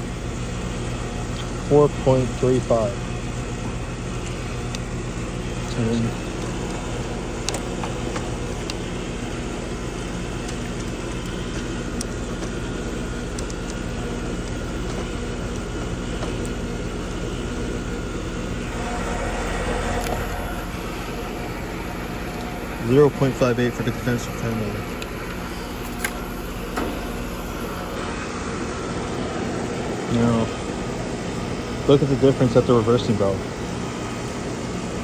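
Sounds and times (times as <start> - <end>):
compressor hum: 0.0 - 35.0
condenser fan: 0.0 - 35.0.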